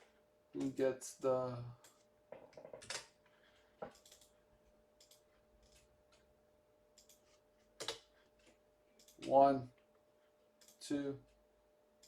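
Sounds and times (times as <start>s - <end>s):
faint computer clicks: 5.0s - 5.8s.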